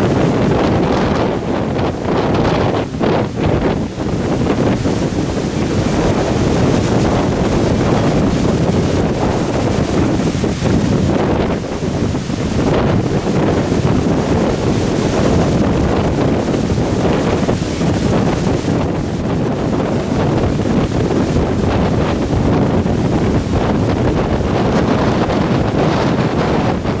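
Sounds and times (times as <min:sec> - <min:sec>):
strong wind buffeting microphone: 0:00.0 - 0:27.0.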